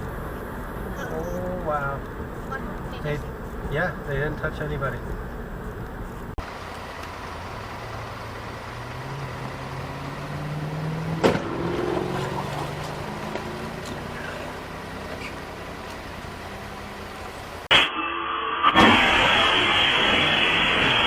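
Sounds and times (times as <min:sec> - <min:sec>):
road noise: 0:00.0 - 0:17.8, 0:18.8 - 0:21.0
car engine accelerating: 0:05.1 - 0:17.7.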